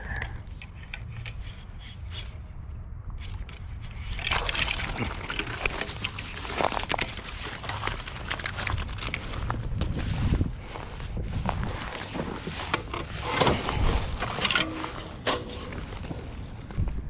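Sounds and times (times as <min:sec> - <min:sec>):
water splashing and sloshing: 0:03.6 - 0:09.4
fish thrashing at the surface: 0:04.1 - 0:07.5.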